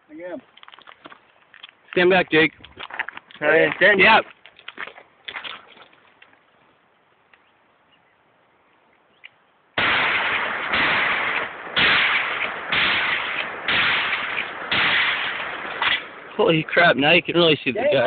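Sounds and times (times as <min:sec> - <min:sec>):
shotgun blasts: 0:09.8 - 0:16.4.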